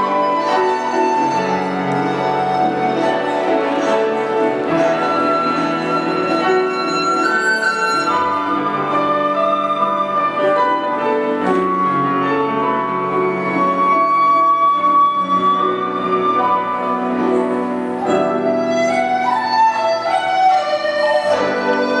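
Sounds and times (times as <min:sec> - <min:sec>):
bamboo flute melody: 0:00.0 - 0:22.0
piano accompaniment: 0:00.0 - 0:22.0.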